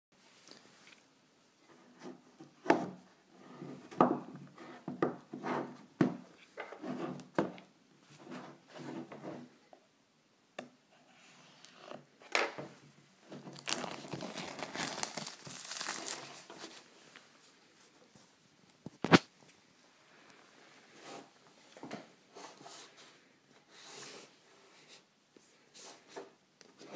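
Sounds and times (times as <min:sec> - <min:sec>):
packaging crinkling and tearing: 0:13.3 - 0:16.9.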